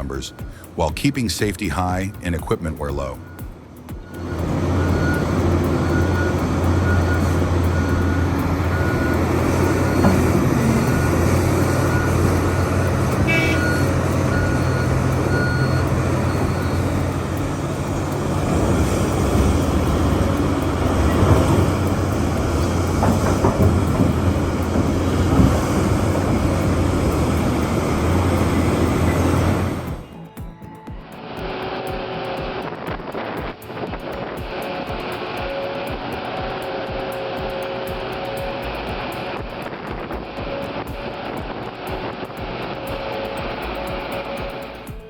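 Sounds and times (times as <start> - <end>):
warning alarm beeping: 0.0 - 23.2
diesel machinery engine drone: 0.0 - 45.0.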